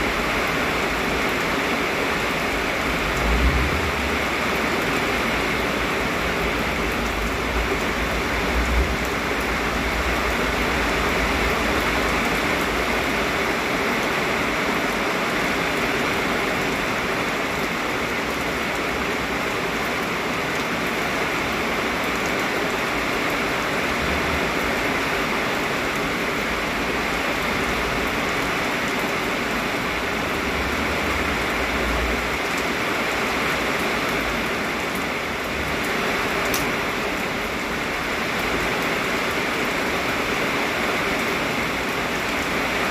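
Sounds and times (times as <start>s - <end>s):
heavy rain pouring: 0.0s - 42.9s
wind rumble on microphone: 2.2s - 13.3s.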